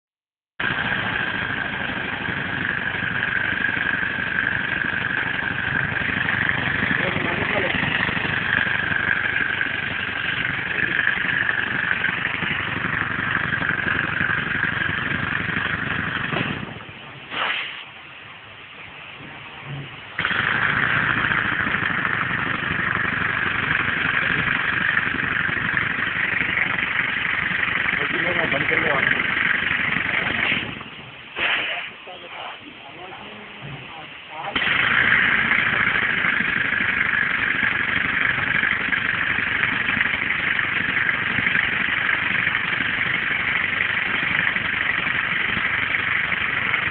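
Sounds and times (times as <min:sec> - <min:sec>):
air engine running: 0:00.6 - 0:17.5, 0:20.2 - 0:32.0, 0:34.5 - 0:46.9
hiss of exhaust air: 0:17.3 - 0:17.9
constant hiss: 0:23.2 - 0:46.8.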